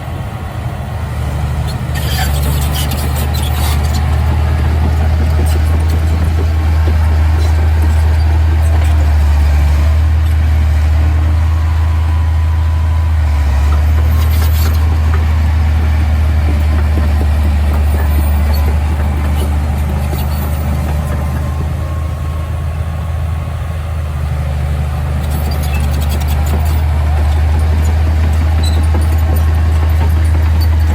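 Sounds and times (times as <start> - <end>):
heavy machinery droning: 0.0 - 30.9.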